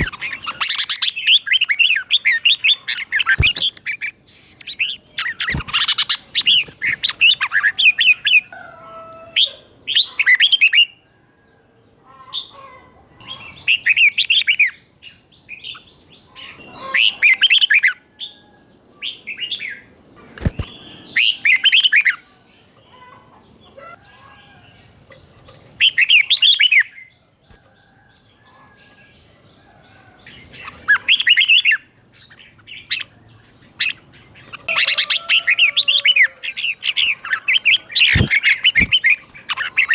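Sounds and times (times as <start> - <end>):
bulbul singing warbled phrases: 0.0 - 8.5, 30.2 - 39.9
soft bird chirps: 0.0 - 9.1, 19.1 - 39.9.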